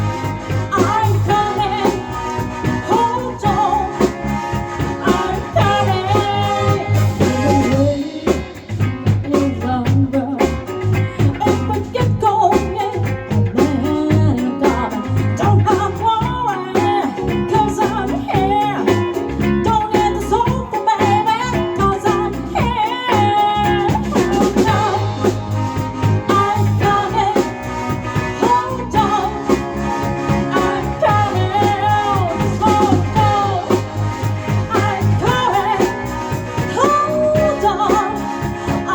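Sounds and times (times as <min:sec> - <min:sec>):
wavering lead melody: 0:00.0 - 0:08.8, 0:23.6 - 0:38.9
bass line: 0:00.0 - 0:38.9
drum kit: 0:00.0 - 0:38.9.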